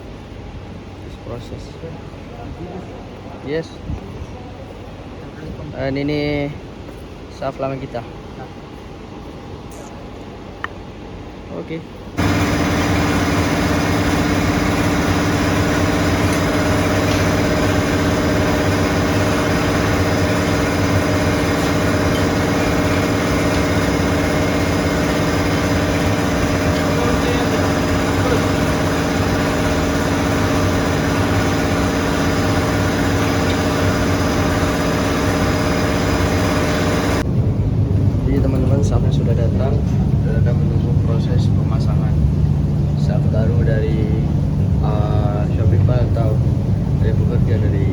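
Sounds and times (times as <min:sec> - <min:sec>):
heavy machinery humming: 0:12.2 - 0:47.9.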